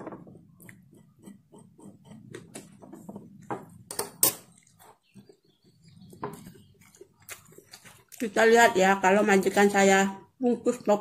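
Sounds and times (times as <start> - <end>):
person chewing food: 0.5 - 2.5, 3.2 - 8.3.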